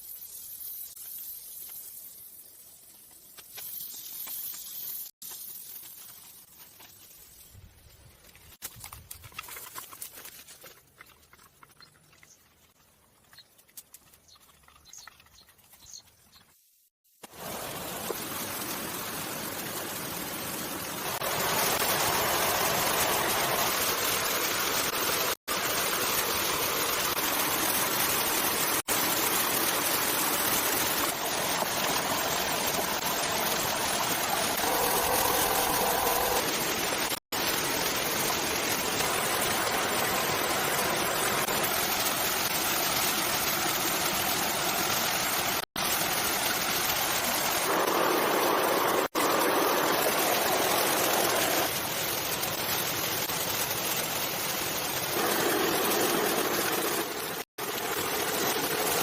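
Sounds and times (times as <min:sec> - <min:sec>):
rushing water: 0:17.3 - 0:59.0.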